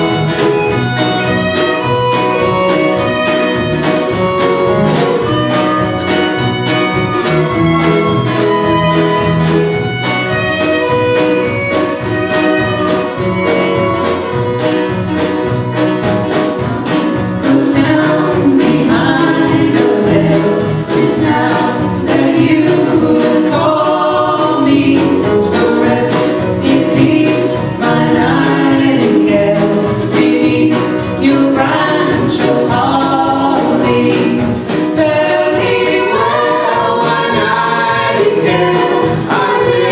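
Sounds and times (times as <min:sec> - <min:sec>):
fiddle: 0:00.0 - 0:39.9
voices singing harmonies: 0:10.8 - 0:39.9.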